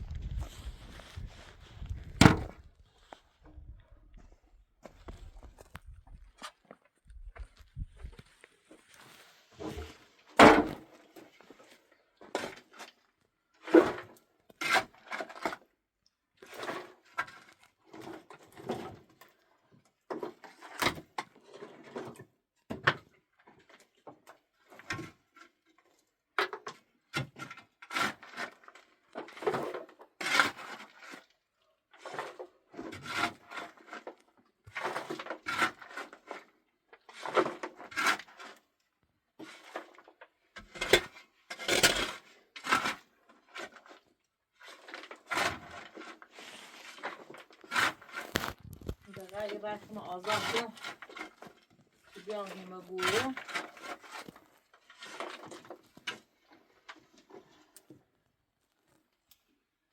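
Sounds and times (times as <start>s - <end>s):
objects knocking and scraping: 0.0s - 6.7s, 44.7s - 58.0s.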